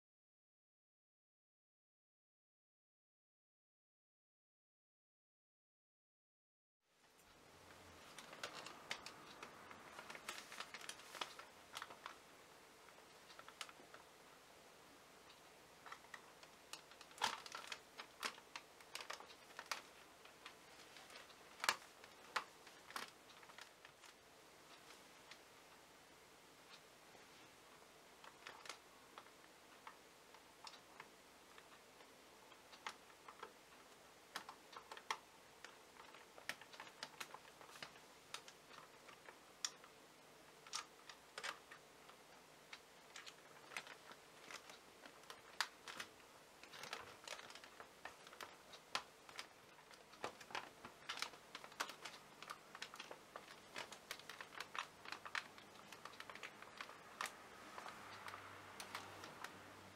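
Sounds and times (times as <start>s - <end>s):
hands handling plastic parts: 40.6s - 59.6s.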